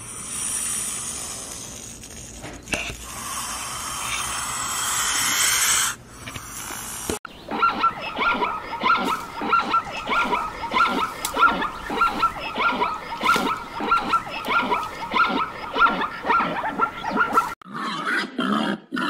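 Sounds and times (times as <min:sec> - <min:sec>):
zebra yelping barks: 0:07.4 - 0:17.6.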